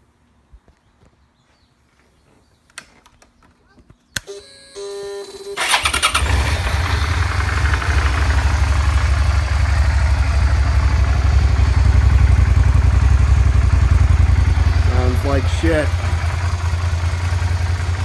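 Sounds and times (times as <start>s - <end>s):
motorcycle engine idling: 5.6s - 18.0s.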